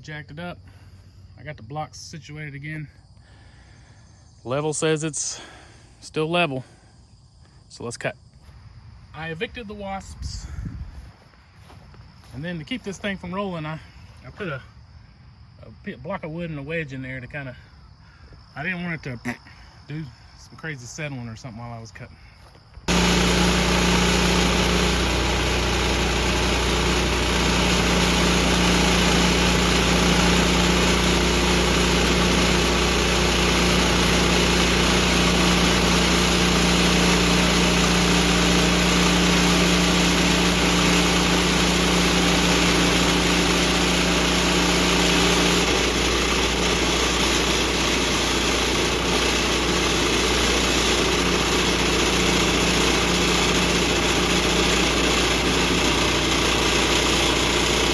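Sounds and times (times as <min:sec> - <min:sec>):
bandsaw mill cutting log: 0:22.9 - 0:57.9.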